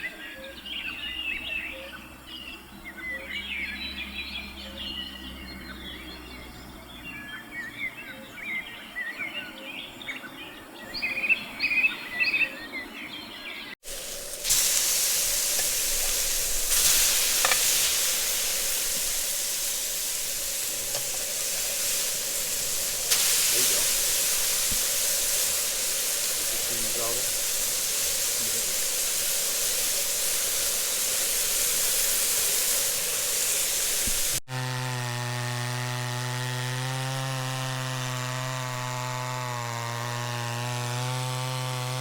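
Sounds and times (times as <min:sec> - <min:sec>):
wild birds chirping and singing: 0:00.0 - 0:13.8
steady hiss: 0:13.8 - 0:34.4.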